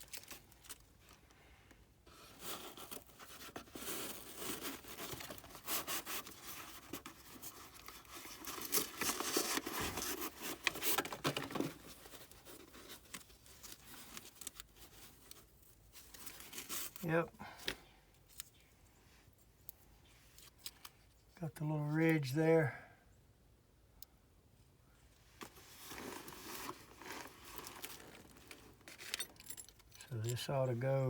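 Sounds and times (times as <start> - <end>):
packaging crinkling and tearing: 0.0 - 1.2, 2.3 - 17.0, 25.7 - 29.2.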